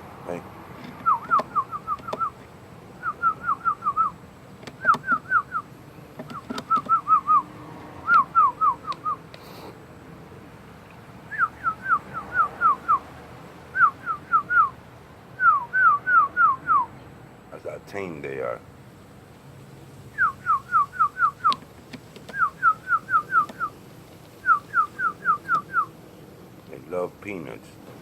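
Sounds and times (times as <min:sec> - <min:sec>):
whistling falling notes: 0:20.2 - 0:21.6.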